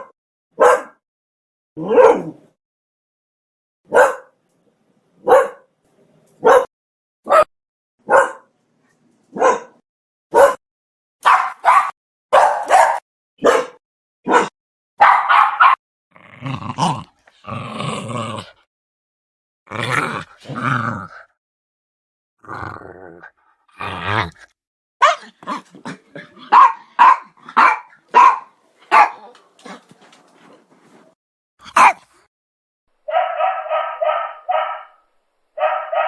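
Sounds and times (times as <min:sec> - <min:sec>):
dog barking: 0:00.0 - 0:01.0, 0:01.8 - 0:02.4, 0:03.9 - 0:04.4, 0:05.2 - 0:05.7, 0:06.4 - 0:06.7, 0:07.3 - 0:08.5, 0:09.3 - 0:10.6, 0:11.2 - 0:15.8, 0:25.0 - 0:25.6, 0:26.5 - 0:29.3, 0:31.6 - 0:32.1, 0:33.0 - 0:35.0, 0:35.6 - 0:36.0
dog growling: 0:16.1 - 0:18.7, 0:19.7 - 0:21.4, 0:22.4 - 0:24.6.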